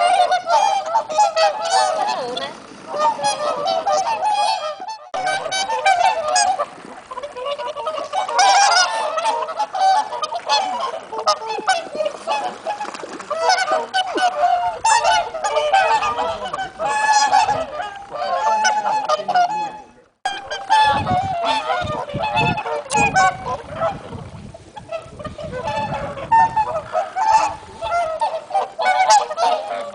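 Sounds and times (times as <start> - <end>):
swans calling: 0.0 - 29.9.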